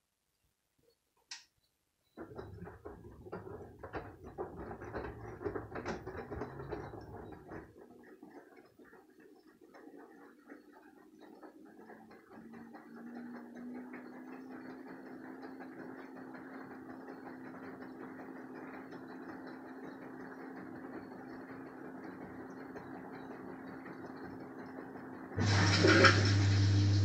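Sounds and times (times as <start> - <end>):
washing machine spin hum: 2.0 - 27.0
water inlet valve buzzing: 25.4 - 27.0
water rushing in: 25.4 - 27.0.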